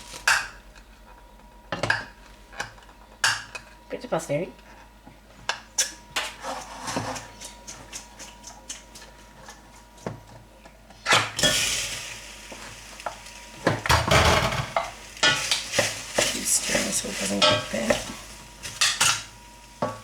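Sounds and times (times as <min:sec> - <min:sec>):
food sizzling: 0:11.3 - 0:20.0
pan clattering: 0:13.7 - 0:19.2
loud knock: 0:13.9 - 0:14.8.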